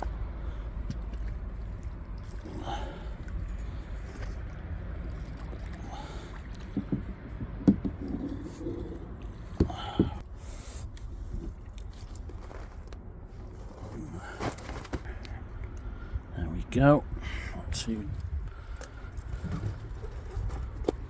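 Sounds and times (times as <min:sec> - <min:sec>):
sharp knocks in boat: 0:06.6 - 0:08.3.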